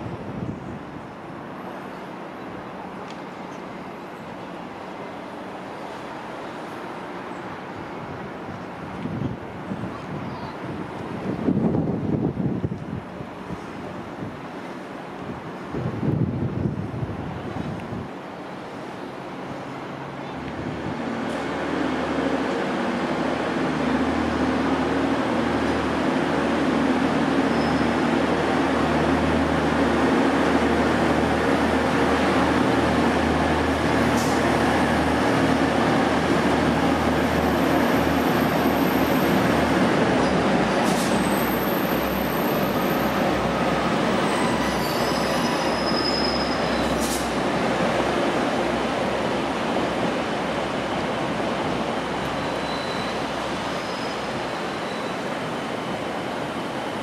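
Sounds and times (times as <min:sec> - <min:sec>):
diesel train engine hum: 0:00.0 - 0:57.0
wheel squeals: 0:44.2 - 0:47.1, 0:52.4 - 0:55.3.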